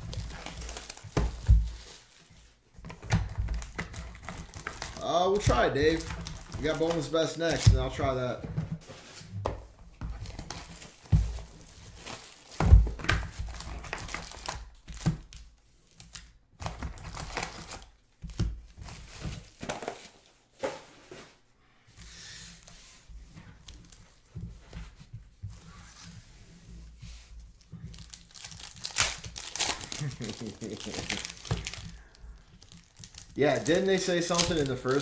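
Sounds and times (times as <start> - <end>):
card packs tearing open: 0.0 - 2.2, 3.5 - 8.1, 11.8 - 15.3, 16.0 - 17.9, 27.9 - 35.0
wrappers crinkling: 0.0 - 2.4, 3.5 - 8.1, 27.5 - 35.0.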